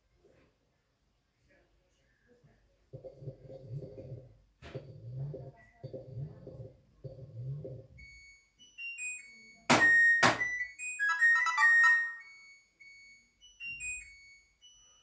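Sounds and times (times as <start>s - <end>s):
electronic beep tones: 9.8s - 12.5s
electronic chime melody: 9.8s - 12.7s.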